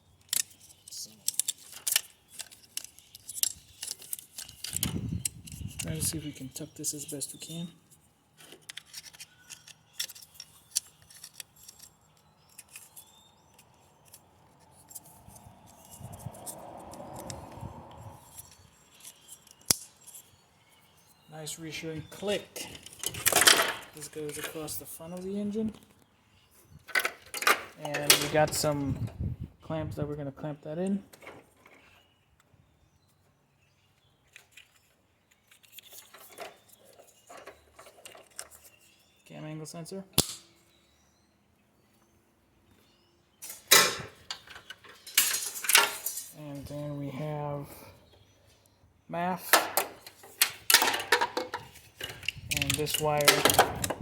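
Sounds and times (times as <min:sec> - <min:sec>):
plastic connectors clicking: 0:00.2 - 0:06.1, 0:49.5 - 0:54.0
wiring rubbing and rustling: 0:00.2 - 0:20.5, 0:34.3 - 0:39.0, 0:49.8 - 0:54.0
clamps clicking and rattling: 0:43.4 - 0:46.4, 0:49.5 - 0:54.0.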